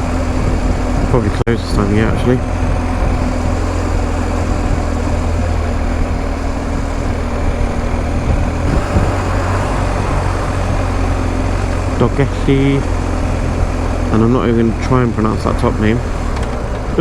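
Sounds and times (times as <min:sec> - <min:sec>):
motorcycle engine running: 0:00.0 - 0:17.0
wind and road noise: 0:00.0 - 0:17.0.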